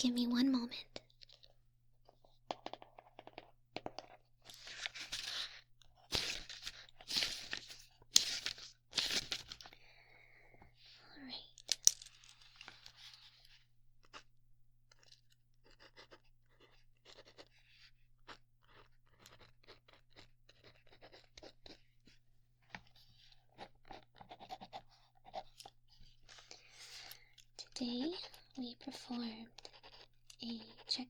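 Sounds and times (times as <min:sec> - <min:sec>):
pen scratching on paper: 0:23.5 - 0:25.6, 0:28.1 - 0:31.0.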